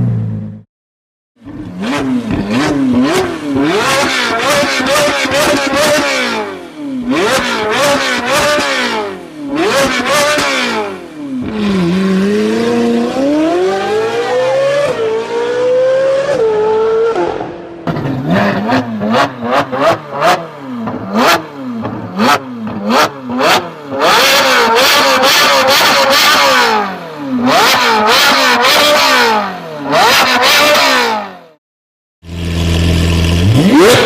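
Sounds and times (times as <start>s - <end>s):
car engine revving: 1.4s - 31.5s, 32.3s - 34.0s.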